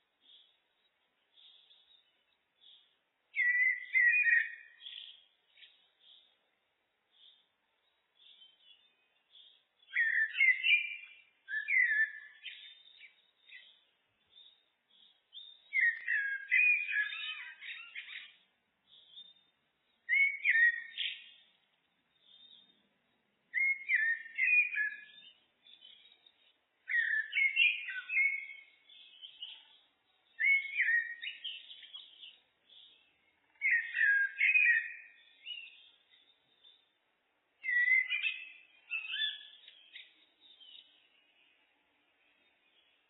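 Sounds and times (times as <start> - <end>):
blackbird singing fluty whistles: 3.4 - 6.3, 8.2 - 13.8, 14.4 - 19.4, 20.1 - 21.4, 23.5 - 26.3, 26.9 - 33.0, 33.6 - 36.8, 37.6 - 41.0.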